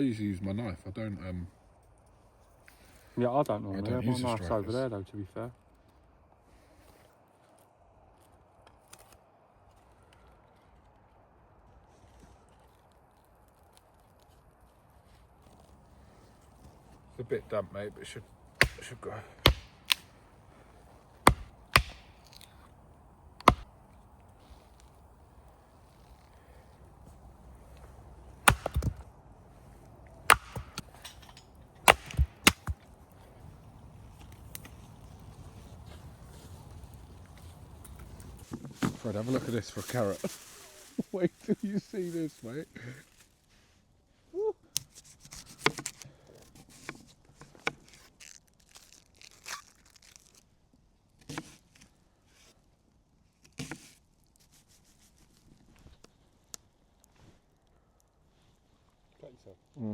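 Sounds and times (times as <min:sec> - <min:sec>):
blade chopping strikes: 0:18.6 - 0:20.1, 0:21.2 - 0:22.5, 0:23.4 - 0:23.7, 0:28.4 - 0:29.0, 0:30.2 - 0:31.0, 0:31.8 - 0:32.8
papery rustling: 0:38.4 - 0:42.3.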